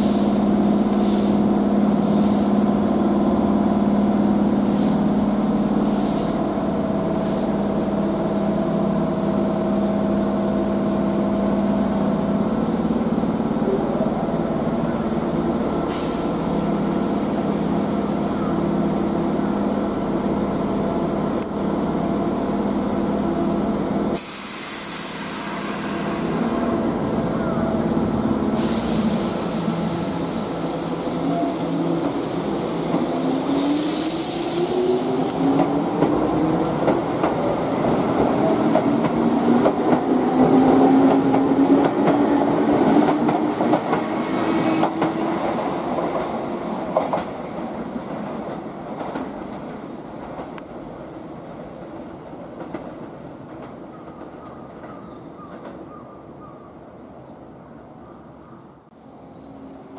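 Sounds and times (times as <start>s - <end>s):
train wheels clicking over rail joints: 35.2s - 50.8s.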